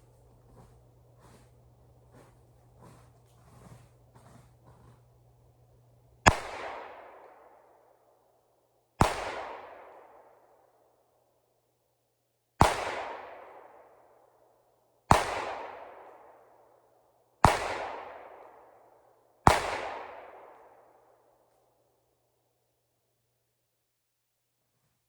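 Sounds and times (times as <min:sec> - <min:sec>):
faint low hum: 0:00.0 - 0:08.6
gunshots echoing: 0:06.2 - 0:07.6, 0:09.0 - 0:10.3, 0:12.6 - 0:13.7, 0:15.1 - 0:16.1, 0:17.4 - 0:18.4, 0:19.5 - 0:20.6.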